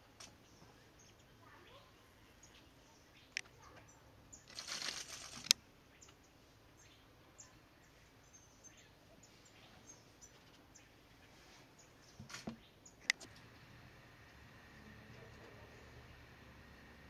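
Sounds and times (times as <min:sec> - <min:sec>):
small birds chirping: 0:00.0 - 0:17.0
bird wings fluttering: 0:04.4 - 0:05.6
sharp click: 0:12.3 - 0:13.3.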